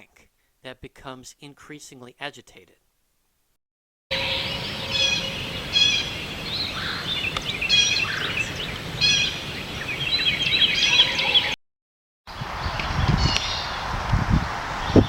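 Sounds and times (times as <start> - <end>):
blue jay nasal call: 4.1 - 11.5
birds twittering: 4.1 - 11.6, 12.3 - 13.8.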